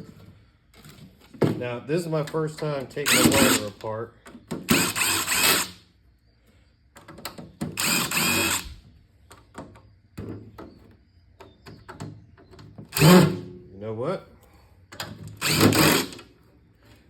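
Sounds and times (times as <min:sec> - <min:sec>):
power drill running: 0:03.0 - 0:03.7, 0:04.6 - 0:05.8, 0:07.8 - 0:08.8, 0:12.9 - 0:13.4, 0:15.4 - 0:16.2.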